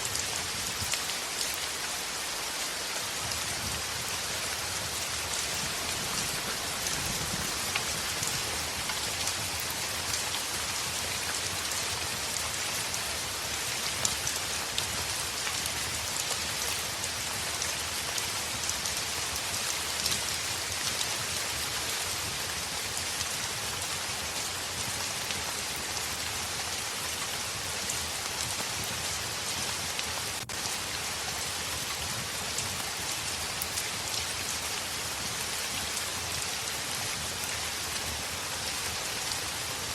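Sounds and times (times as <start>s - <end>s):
heavy rain on window: 0.1s - 39.9s.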